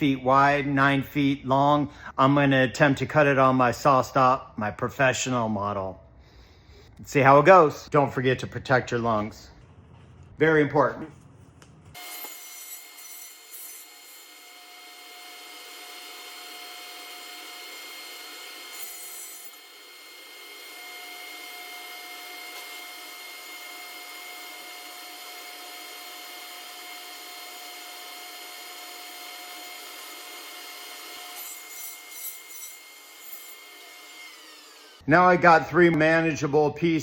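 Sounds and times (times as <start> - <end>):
table saw cutting board: 11.9 - 35.0.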